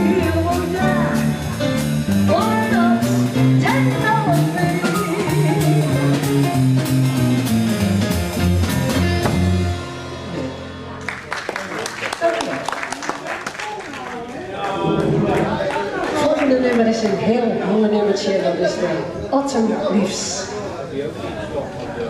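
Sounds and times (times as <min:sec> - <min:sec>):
small jazz band playing: 0:00.0 - 0:12.1.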